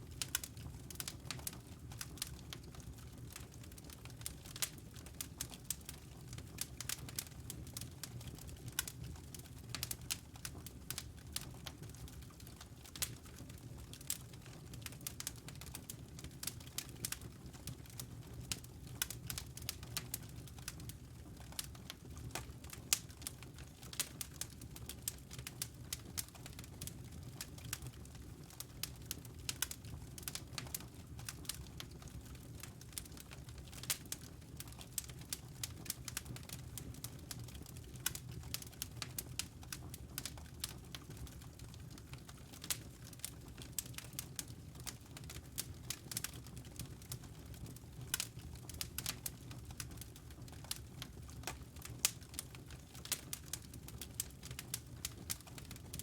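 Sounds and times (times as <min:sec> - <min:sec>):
low steady fire rumble: 0:00.0 - 0:56.0
wood fire crackling: 0:00.0 - 0:56.0
fire pops and snaps: 0:12.4 - 0:14.2, 0:14.8 - 0:56.0.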